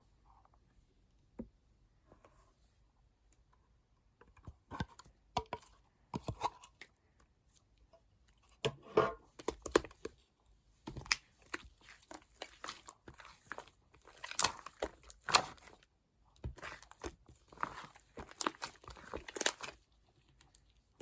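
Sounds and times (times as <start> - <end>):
slime crackling and popping: 11.0 - 15.8, 16.4 - 19.8.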